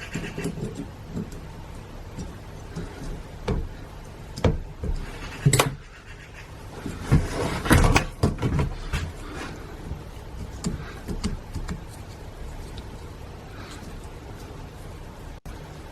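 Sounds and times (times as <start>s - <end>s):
metal rubbing and scraping: 0.0s - 4.1s, 4.7s - 15.4s
knocks and clicks of metal parts: 0.0s - 5.9s.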